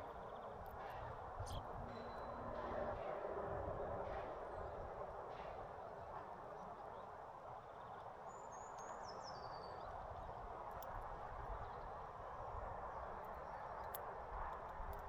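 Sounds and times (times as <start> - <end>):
outdoor background noise: 0.0 - 15.0
faint clicks: 13.2 - 15.0.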